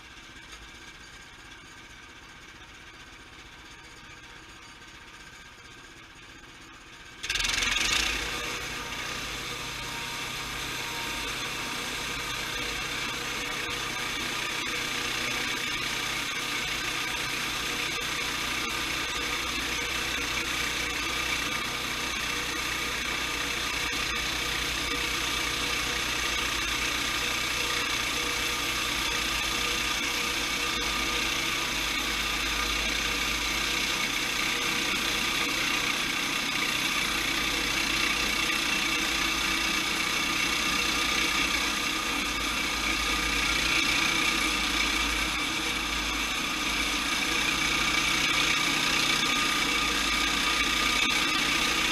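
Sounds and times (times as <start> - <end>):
sawmill mechanical drone: 0.0 - 51.9.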